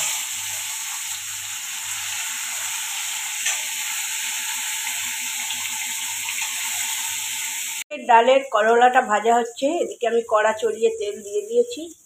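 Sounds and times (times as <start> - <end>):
vegetables sizzling in a wok: 0.0 - 7.9, 9.1 - 12.0.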